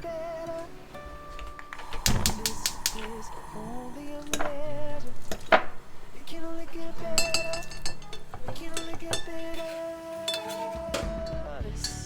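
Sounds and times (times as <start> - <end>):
cutlery and dishes clinking: 5.3 - 11.1.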